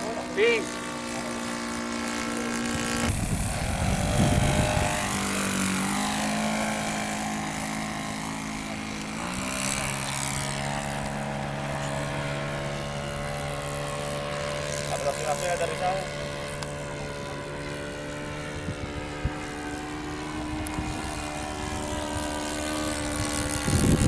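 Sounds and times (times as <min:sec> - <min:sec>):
model airplane engine and propeller: 0:00.0 - 0:24.0
wind buffeting microphone: 0:02.6 - 0:13.1, 0:16.2 - 0:24.0.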